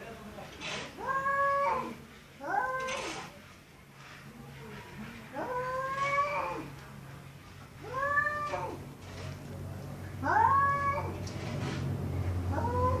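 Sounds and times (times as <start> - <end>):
cat yowling: 1.0 - 3.2, 7.8 - 8.8, 10.2 - 11.2, 12.5 - 13.0.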